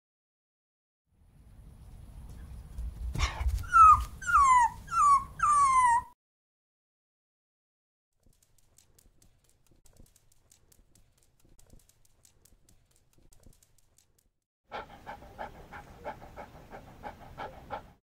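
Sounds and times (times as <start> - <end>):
dog panting: 14.7 - 18.0.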